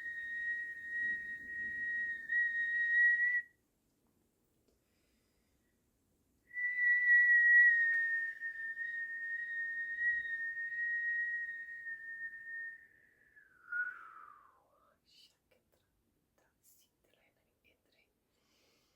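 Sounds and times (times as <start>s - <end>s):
person whistling high note: 0.0s - 3.5s, 6.5s - 14.6s.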